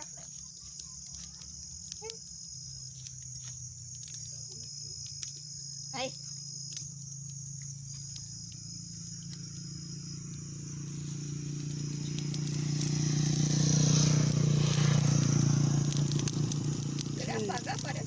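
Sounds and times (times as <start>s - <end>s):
crickets chirring: 0.0s - 18.0s
rushing noise with faint crackles: 8.0s - 18.0s.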